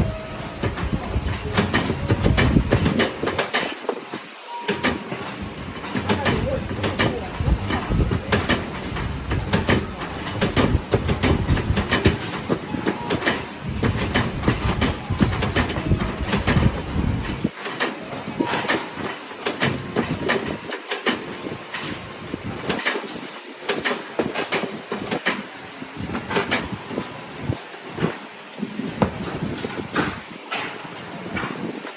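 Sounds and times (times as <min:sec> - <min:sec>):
metal parts clanking: 0:00.0 - 0:31.9.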